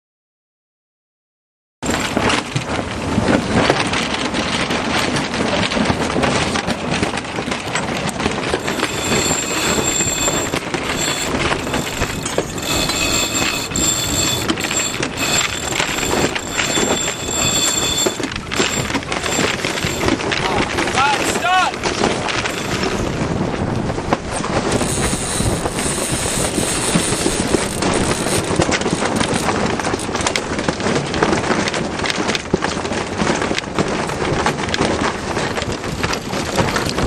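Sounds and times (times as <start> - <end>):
small clicks and rattles: 7.1 - 23.4, 24.2 - 32.9
faint high whine: 8.6 - 23.2.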